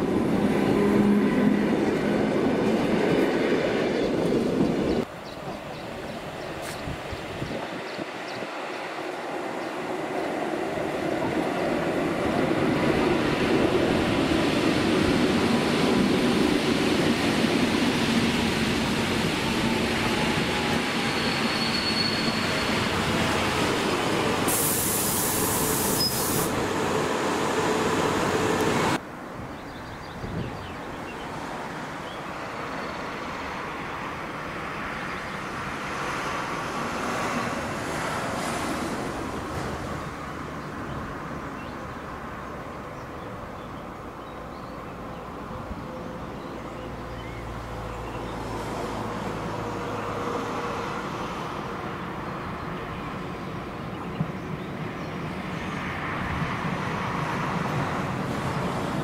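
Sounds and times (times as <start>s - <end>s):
train wheels on rails: 0.0s - 29.0s
brief high hiss: 24.5s - 26.6s.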